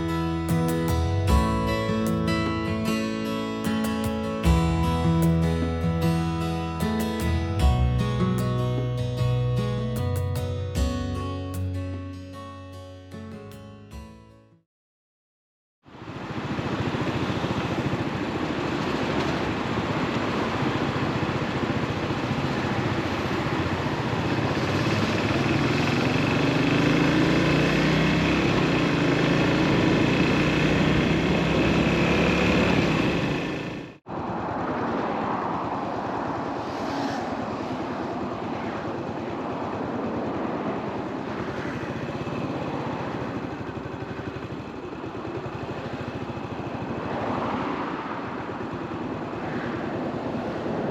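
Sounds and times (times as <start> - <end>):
wind and road noise: 15.8 - 50.9
motorcycle engine running: 22.2 - 34.0, 38.9 - 47.3.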